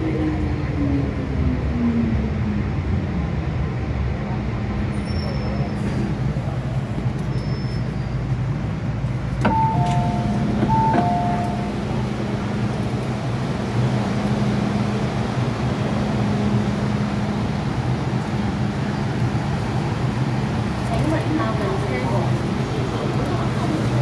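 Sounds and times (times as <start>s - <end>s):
train running rumble: 8.2s - 24.0s.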